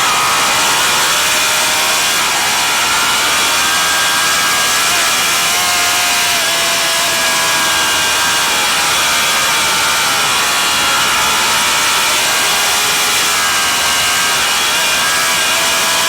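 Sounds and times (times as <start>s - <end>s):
motorcycle engine at high revs: 0.0s - 16.0s.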